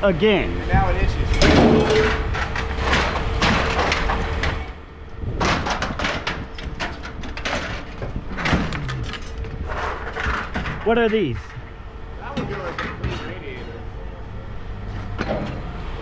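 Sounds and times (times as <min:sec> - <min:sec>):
scrap metal clattering: 0:01.2 - 0:04.6, 0:05.4 - 0:11.7.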